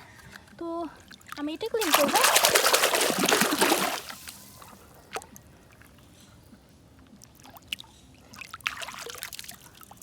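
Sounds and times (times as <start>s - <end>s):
water splashing over toy: 1.7s - 4.8s.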